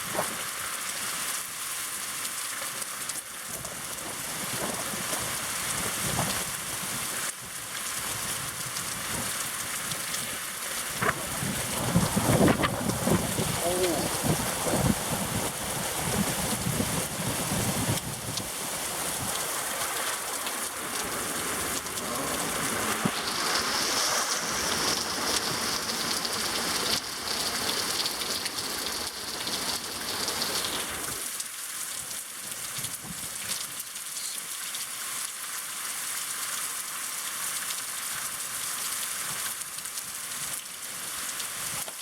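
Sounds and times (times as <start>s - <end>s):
heavy rain pouring: 0.0s - 42.0s
raindrop hits: 8.5s - 23.6s.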